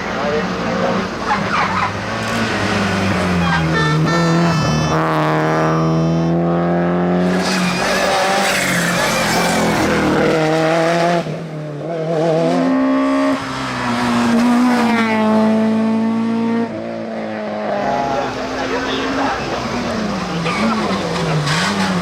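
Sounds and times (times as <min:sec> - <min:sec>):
tyres squealing: 0:01.2 - 0:06.3, 0:07.4 - 0:09.9, 0:20.2 - 0:22.0.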